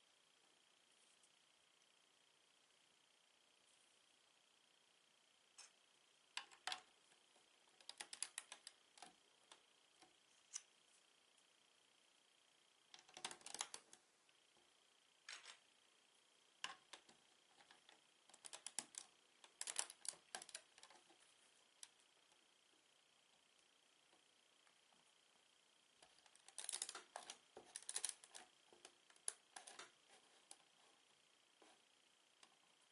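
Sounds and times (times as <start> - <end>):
plastic pieces clicking together: 7.8 - 9.1, 13.0 - 13.9, 18.3 - 20.9, 26.4 - 28.4.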